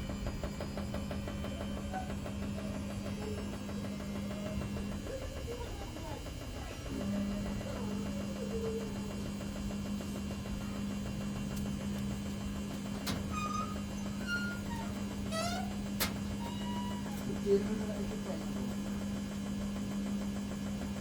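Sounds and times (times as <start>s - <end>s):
washing machine motor hum: 0.0s - 21.0s.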